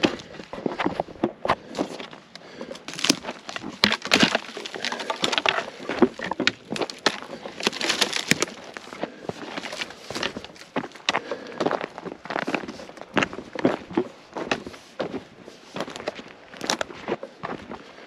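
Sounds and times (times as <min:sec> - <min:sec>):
twigs cracking and snapping: 0:00.0 - 0:14.7, 0:15.8 - 0:17.2
footsteps crunching through brush: 0:00.0 - 0:18.0.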